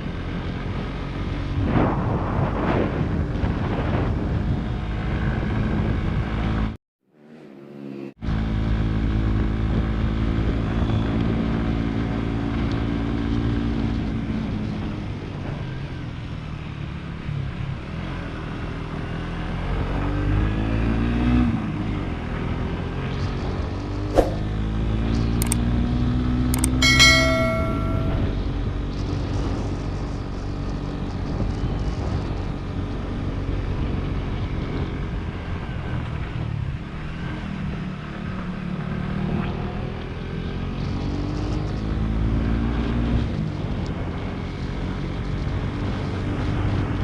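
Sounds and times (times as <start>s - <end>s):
sharp clicks: 25.4s - 25.6s, 26.6s - 27.0s.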